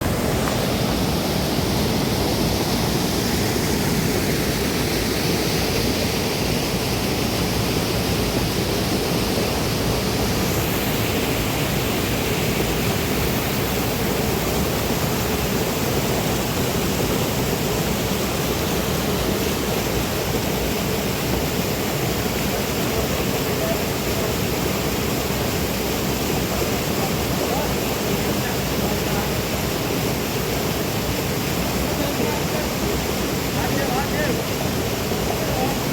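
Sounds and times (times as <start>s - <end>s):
fast-flowing river water rushing: 0.0s - 35.9s.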